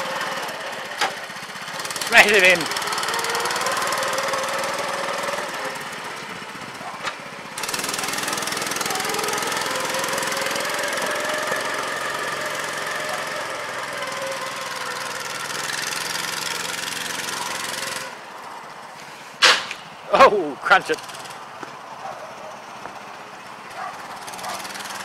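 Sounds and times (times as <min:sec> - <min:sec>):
small engine running under load: 0:00.0 - 0:19.3, 0:20.4 - 0:25.0
sharp click: 0:19.4 - 0:19.8.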